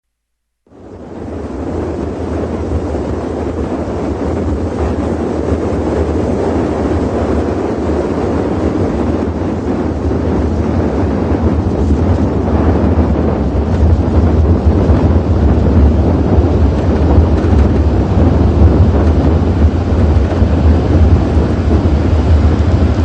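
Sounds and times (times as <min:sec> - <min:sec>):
wind noise on microphone: 0:00.6 - 0:23.0
car engine rumbling: 0:09.0 - 0:23.0.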